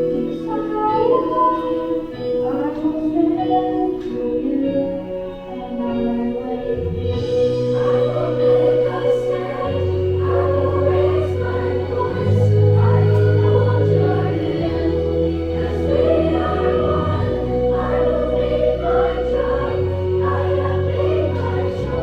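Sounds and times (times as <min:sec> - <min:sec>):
choir singing: 0:00.0 - 0:22.0
low keyboard chords: 0:00.0 - 0:22.0.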